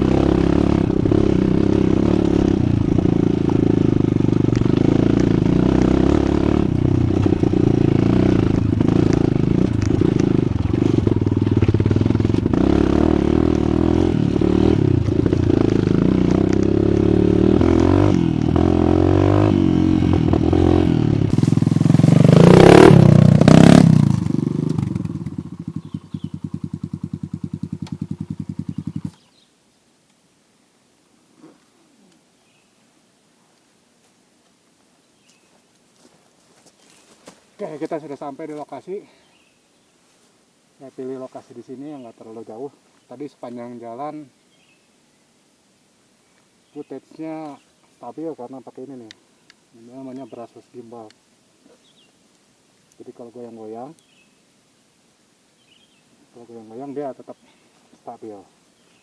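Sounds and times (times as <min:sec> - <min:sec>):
dirt bike engine running: 0:00.0 - 0:29.2.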